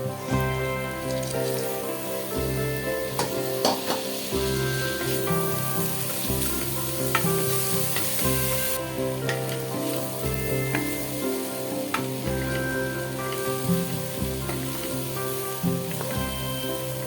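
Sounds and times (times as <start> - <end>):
background music: 0.0 - 17.0
food sizzling in a pan: 0.0 - 17.0
utensil clicking against pan: 3.1 - 4.1.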